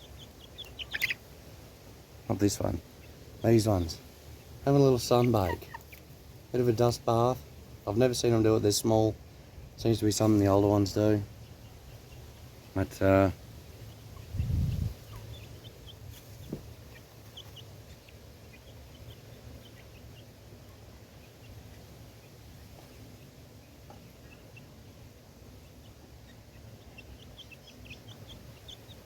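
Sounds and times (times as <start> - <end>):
chicks cheeping: 0.0 - 29.0.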